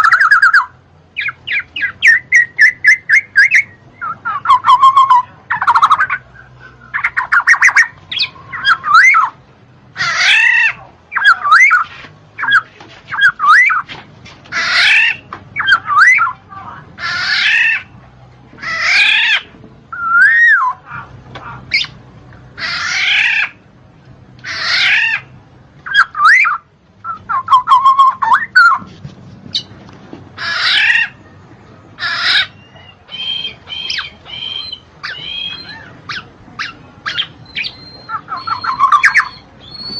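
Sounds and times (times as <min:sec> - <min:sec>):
bird singing whistled phrases: 0:00.0 - 0:09.4, 0:10.3 - 0:13.8, 0:14.8 - 0:16.4, 0:19.0 - 0:20.8, 0:25.9 - 0:28.8, 0:32.3 - 0:39.9.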